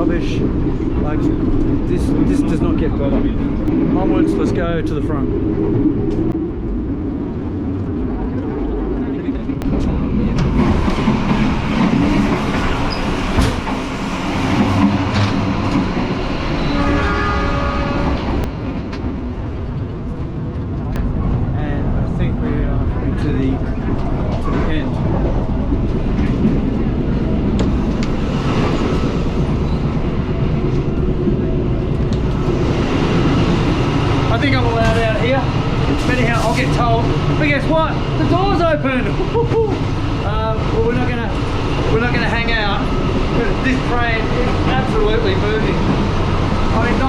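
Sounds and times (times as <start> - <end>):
passenger train running: 0.0 - 47.0
train horn: 16.6 - 18.5.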